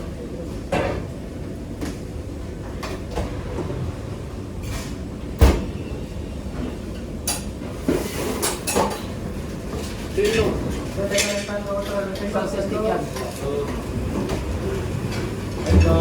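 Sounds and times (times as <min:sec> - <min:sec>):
pots and utensils clattering: 0:07.3 - 0:09.2
low background rumble: 0:15.6 - 0:16.0.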